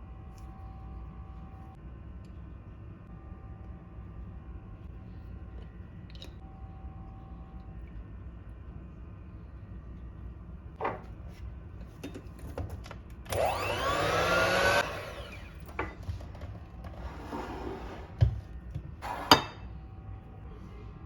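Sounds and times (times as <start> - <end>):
kitchen appliance motor whining: 13.2 - 18.3, 19.0 - 19.5.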